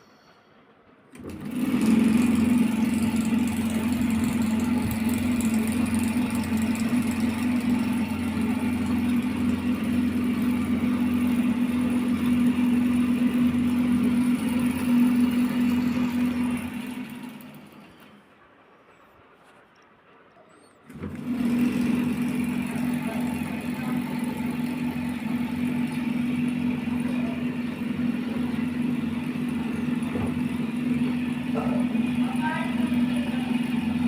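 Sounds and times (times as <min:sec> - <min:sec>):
motor-driven machine humming: 0:01.1 - 0:18.2, 0:20.9 - 0:34.0.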